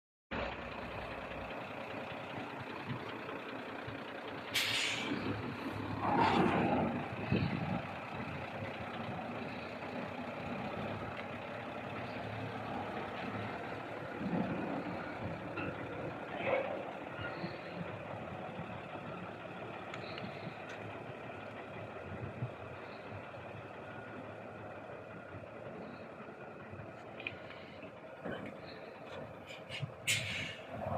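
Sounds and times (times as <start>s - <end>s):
truck engine running: 0.3s - 30.9s
air brake hiss: 4.6s - 5.2s, 29.7s - 30.7s.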